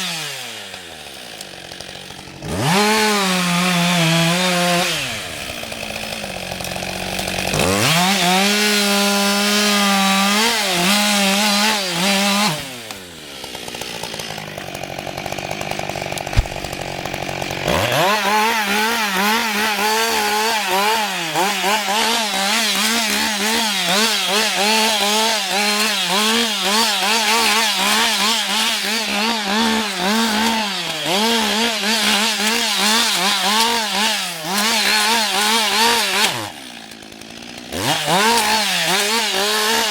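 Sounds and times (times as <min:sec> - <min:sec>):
chainsaw cutting wood: 0:00.0 - 0:39.9
sharp click: 0:16.2 - 0:16.8.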